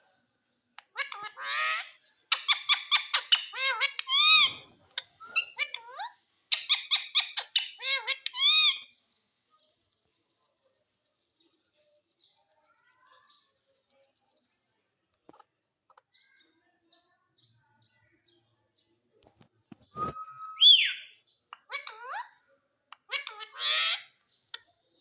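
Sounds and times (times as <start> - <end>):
parakeet chirps: 0.8 - 9.0, 20.0 - 24.8
short held whistle: 20.0 - 21.0
high downward-sliding bird call: 20.0 - 21.1.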